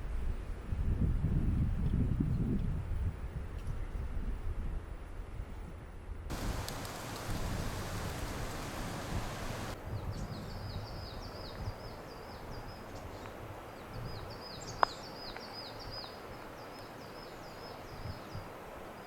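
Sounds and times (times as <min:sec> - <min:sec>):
low outdoor rumble: 0:06.3 - 0:09.8
steady hiss: 0:06.3 - 0:09.8
songbird singing: 0:06.3 - 0:18.4.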